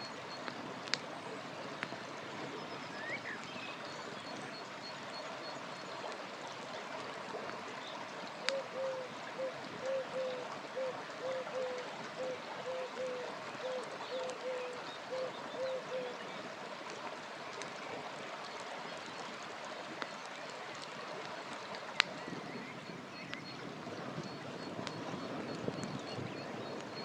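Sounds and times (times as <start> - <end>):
river flowing: 0.0 - 27.0
campfire crackles and pops: 0.1 - 2.1, 19.9 - 22.2, 24.1 - 27.0.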